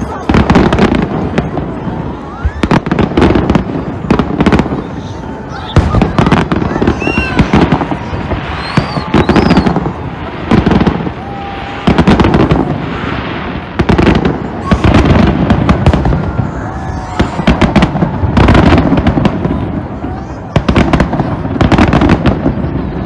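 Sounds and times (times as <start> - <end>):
fireworks bangs and crackling: 0.0 - 23.0
whistling rising shells: 8.4 - 9.8.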